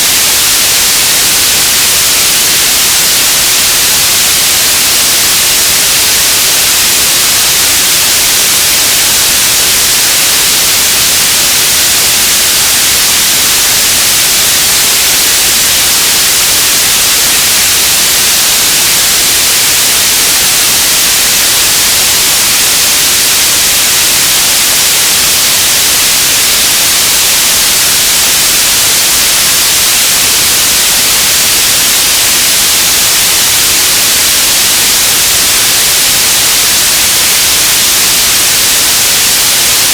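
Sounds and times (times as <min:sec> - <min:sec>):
radio static hiss: 0:00.0 - 0:39.9.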